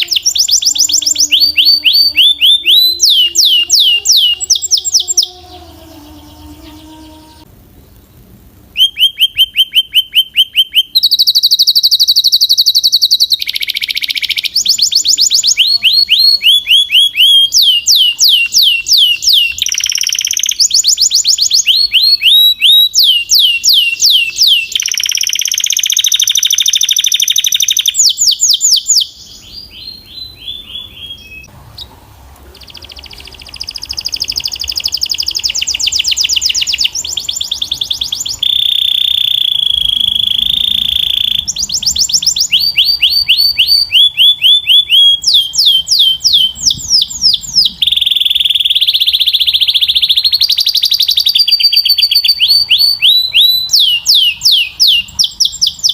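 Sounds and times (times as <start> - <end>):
canary singing trills: 0.0 - 8.0, 8.7 - 31.9, 32.5 - 55.9.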